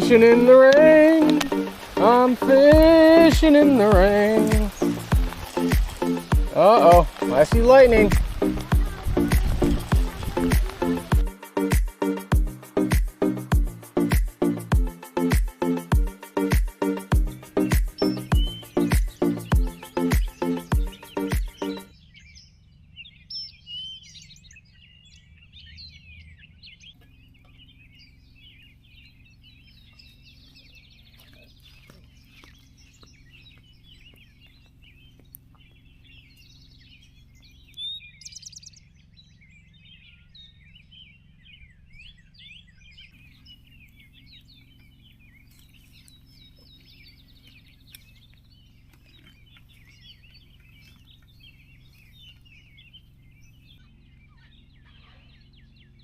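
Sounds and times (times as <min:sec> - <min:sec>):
wild birds chirping and calling: 0:00.0 - 0:56.0
low rumble: 0:07.4 - 0:11.3.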